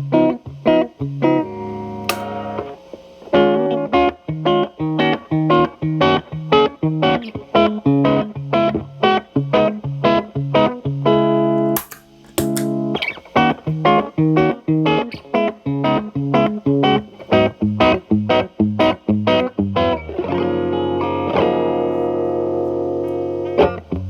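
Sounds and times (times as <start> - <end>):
electric guitar chord ringing: 1.2 - 6.2.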